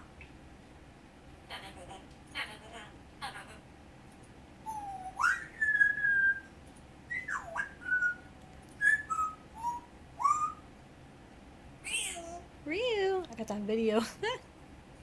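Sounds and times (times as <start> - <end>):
parrot whistling: 4.6 - 6.5, 7.1 - 10.7.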